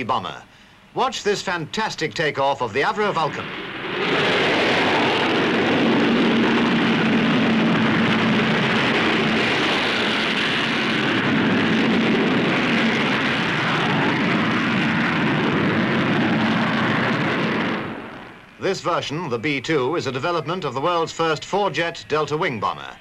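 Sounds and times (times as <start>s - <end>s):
steady low hum: 0.0s - 23.0s
loud jet engine roar: 2.6s - 18.6s.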